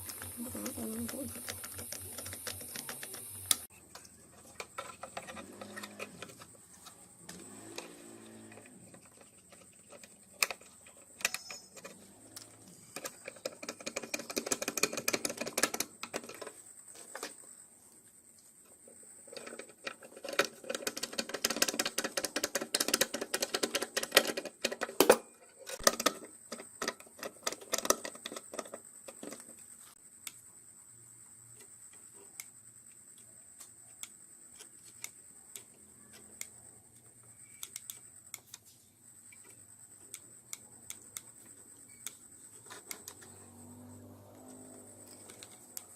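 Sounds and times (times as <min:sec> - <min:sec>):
buzzing rattling tool: 0:00.0 - 0:03.7
rapid clicking and tapping: 0:00.0 - 0:06.4, 0:12.8 - 0:17.4, 0:19.3 - 0:25.1.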